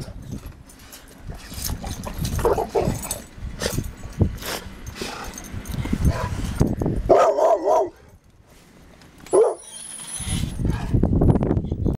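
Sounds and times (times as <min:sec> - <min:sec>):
dog barking: 0:07.1 - 0:08.0, 0:09.3 - 0:09.6.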